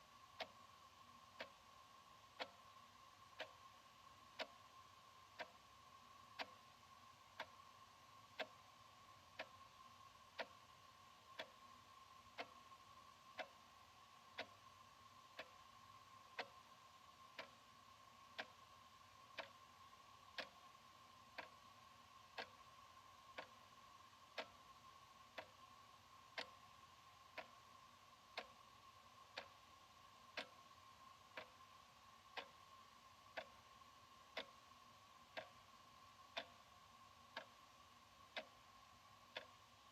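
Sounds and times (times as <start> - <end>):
faint steady tone: 0.0 - 39.9
wall clock ticking: 0.0 - 39.9.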